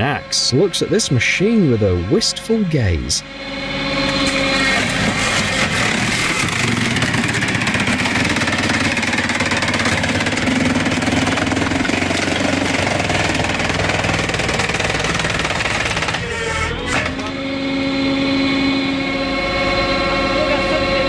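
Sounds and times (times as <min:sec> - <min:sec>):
engine drone: 0:00.0 - 0:21.0
fast mechanical clatter: 0:04.2 - 0:17.1.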